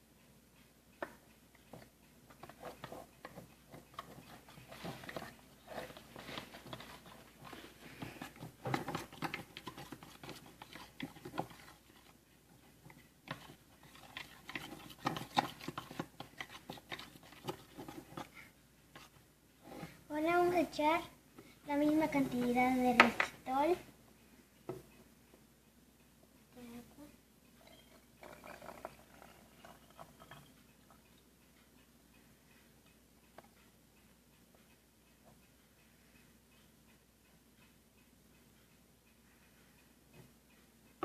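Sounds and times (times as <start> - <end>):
utensil scraping plastic containers: 2.4 - 12.2, 12.8 - 18.4.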